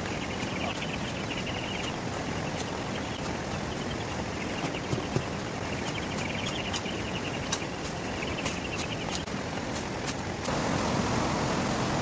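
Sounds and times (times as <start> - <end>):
steady hiss: 5.4 - 12.0.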